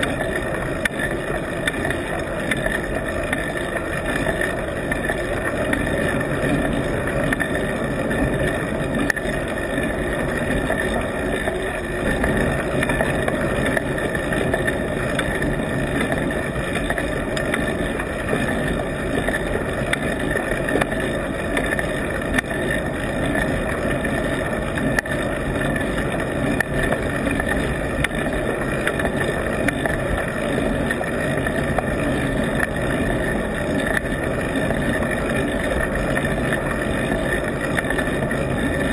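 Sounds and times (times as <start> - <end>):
faint ticks and rattles: 0.0 - 38.9
road and wind rumble: 0.0 - 38.9.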